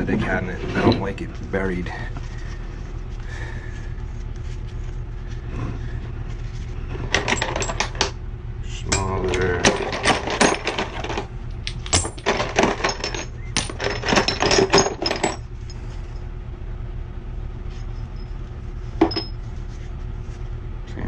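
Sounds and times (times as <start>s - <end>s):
metal pipe fittings clinking: 7.2s - 8.1s, 8.9s - 15.4s, 19.0s - 19.4s.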